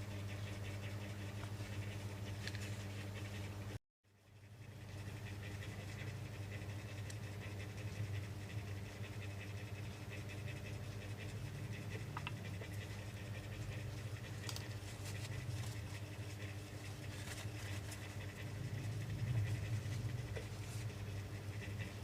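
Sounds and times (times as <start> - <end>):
steady low hum: 0.0 - 22.0
faint scratching: 4.7 - 22.0.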